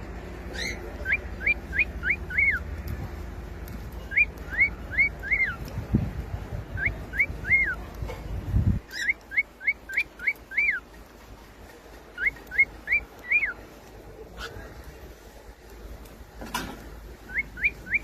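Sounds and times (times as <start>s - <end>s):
cockatiel whistling: 4.1s - 5.6s, 17.3s - 18.0s.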